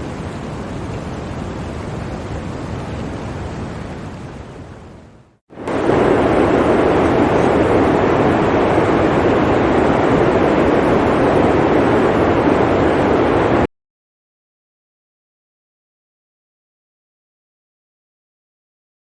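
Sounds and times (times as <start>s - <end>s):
blizzard wind blowing: 0.0s - 13.7s.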